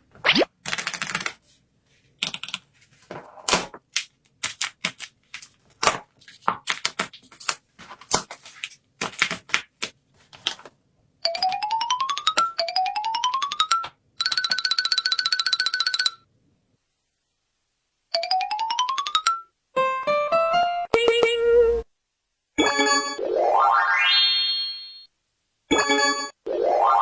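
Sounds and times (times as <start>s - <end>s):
paper pieces tapping and rustling: 2.2s - 10.8s.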